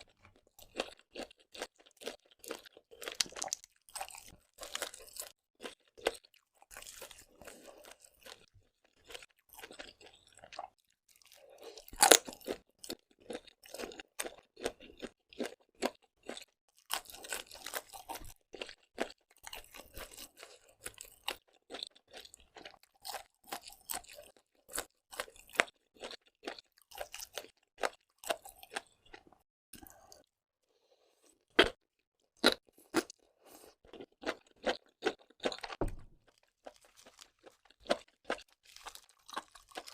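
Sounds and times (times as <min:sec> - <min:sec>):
wet chewing: 0:00.6 - 0:29.2.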